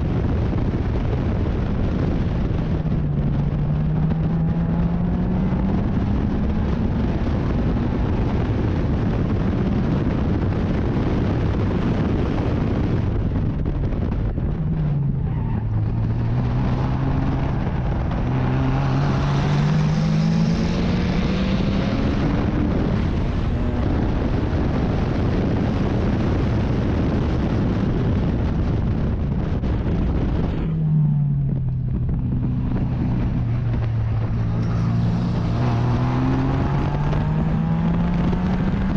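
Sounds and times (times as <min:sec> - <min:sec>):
race car engine revving: 0:01.8 - 0:09.5, 0:11.5 - 0:26.0, 0:30.4 - 0:38.9.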